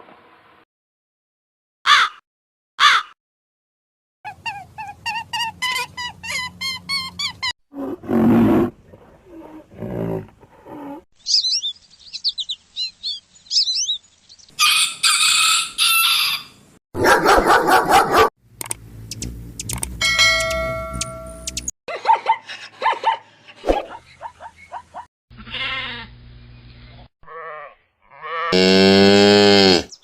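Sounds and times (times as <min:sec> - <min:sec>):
whistled bird notes: 0:11.2 - 0:14.5
high bird twittering: 0:11.2 - 0:14.6, 0:20.4 - 0:21.7
bird chirps: 0:11.2 - 0:14.8, 0:19.1 - 0:21.7
harsh bird calls: 0:11.2 - 0:16.6.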